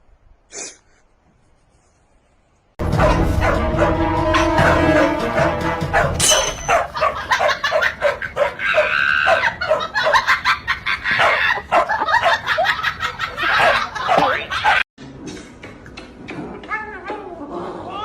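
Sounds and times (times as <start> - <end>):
background music: 2.8 - 6.9
dog barking and yipping: 3.0 - 10.5, 11.1 - 12.8, 13.4 - 14.8.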